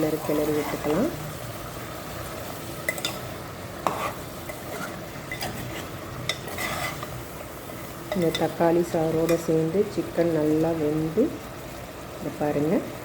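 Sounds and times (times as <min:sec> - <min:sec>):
chicken sizzling in oil: 0:00.0 - 0:13.0
spoon scraping and knocking pan: 0:02.9 - 0:07.2.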